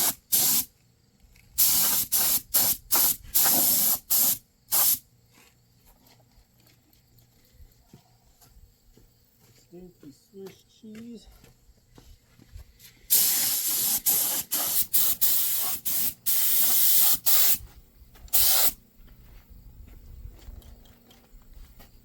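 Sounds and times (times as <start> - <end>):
paint sprayer hissing bursts: 0.0 - 0.7, 1.6 - 5.0, 13.1 - 17.6, 18.3 - 18.8.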